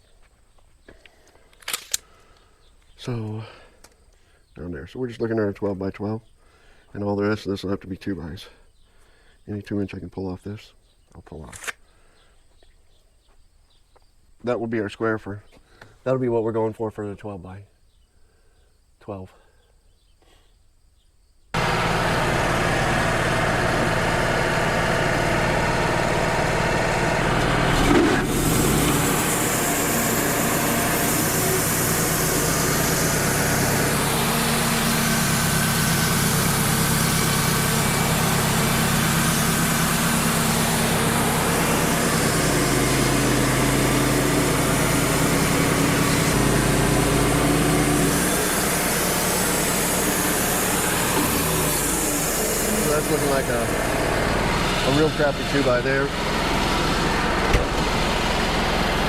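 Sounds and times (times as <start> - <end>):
sawmill cutting a log: 21.6 - 59.0.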